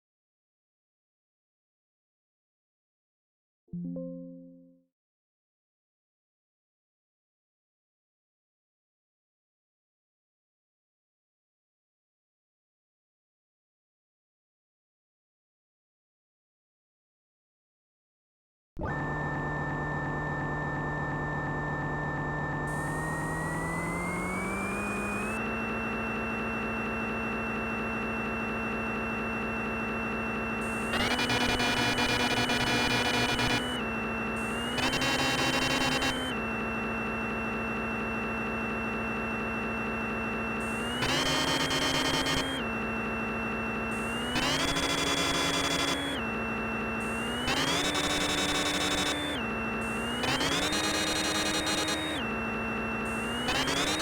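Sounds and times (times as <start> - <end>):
spindle motor hum with whine: 18.8 - 54.0
lathe machining noise: 19.0 - 54.0.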